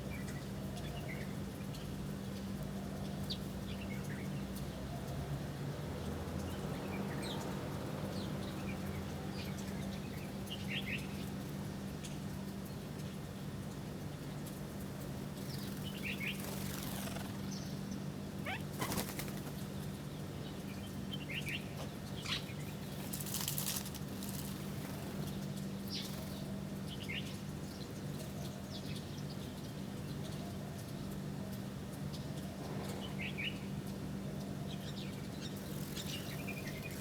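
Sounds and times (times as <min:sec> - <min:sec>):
small birds chirping: 0:05.8 - 0:37.0
wings flapping: 0:15.4 - 0:17.5, 0:18.5 - 0:19.7, 0:23.0 - 0:25.3.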